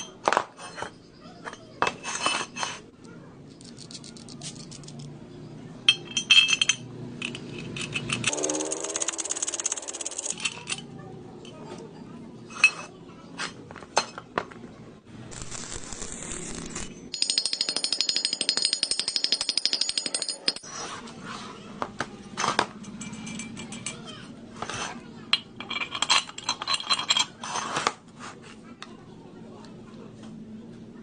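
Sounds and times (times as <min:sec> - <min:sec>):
metal parts knocking and clinking: 0:03.5 - 0:05.1, 0:05.9 - 0:11.6, 0:17.1 - 0:20.7, 0:22.4 - 0:24.7, 0:25.3 - 0:27.7
rapid metallic rattling: 0:07.9 - 0:10.4.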